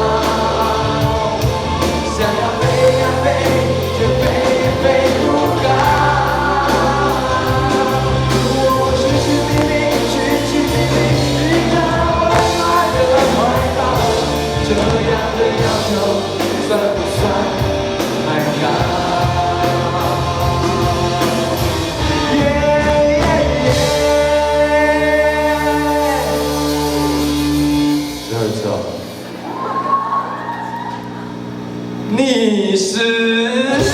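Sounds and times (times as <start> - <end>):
regular drum beat: 0.0 - 24.6
person singing: 0.0 - 28.3
steady bass: 0.0 - 29.4
pop-rock band: 0.0 - 31.0, 32.8 - 33.9.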